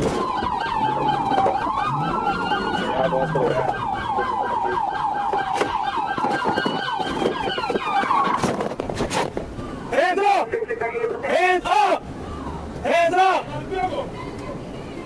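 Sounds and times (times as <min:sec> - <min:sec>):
police siren wail: 0:00.0 - 0:08.3
police siren yelp: 0:00.0 - 0:08.3.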